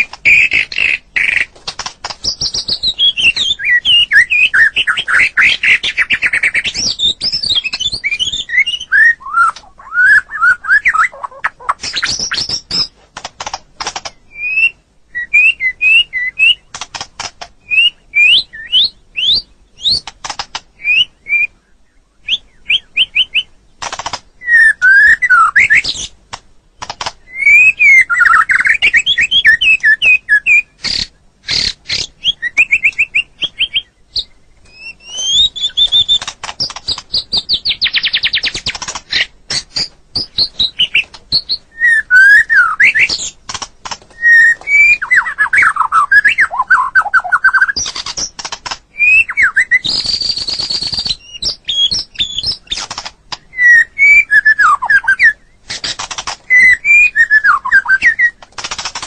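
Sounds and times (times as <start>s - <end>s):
bird singing whistled notes and trills: 0.0s - 59.0s.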